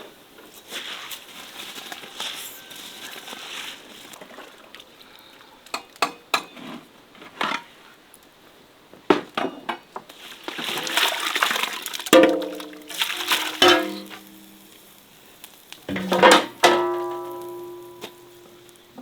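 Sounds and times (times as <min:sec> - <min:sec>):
frying sizzle: 0:10.1 - 0:19.0
metal cookware clinking: 0:12.1 - 0:14.7, 0:15.9 - 0:18.8.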